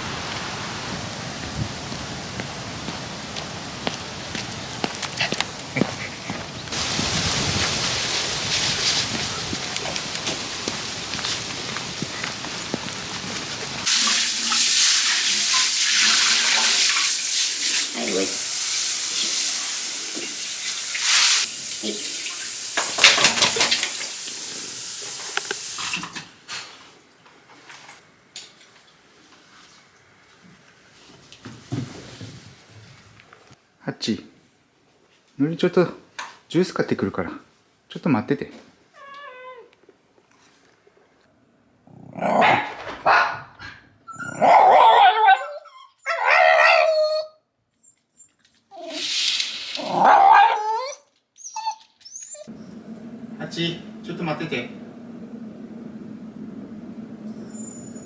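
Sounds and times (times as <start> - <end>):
water running from a tap: 13.9 - 26.3
dog howling and whining: 44.1 - 47.4, 49.8 - 52.8, 57.3 - 58.0.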